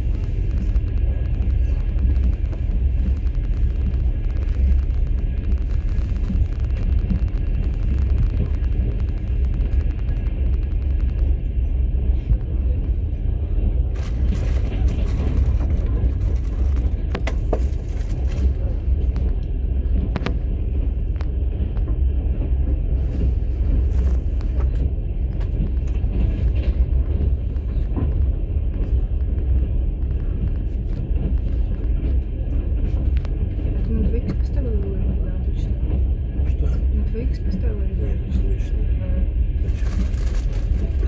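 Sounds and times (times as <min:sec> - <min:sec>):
train clicks and knocks: 0:00.0 - 0:41.0
train rumbling: 0:00.0 - 0:41.0.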